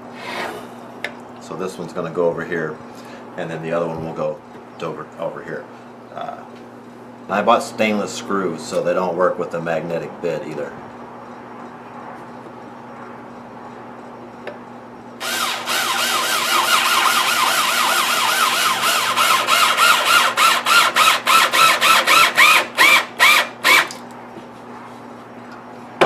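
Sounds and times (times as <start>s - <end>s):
screw squealing in wood: 15.2s - 23.9s
power drill driving screw: 15.2s - 24.0s.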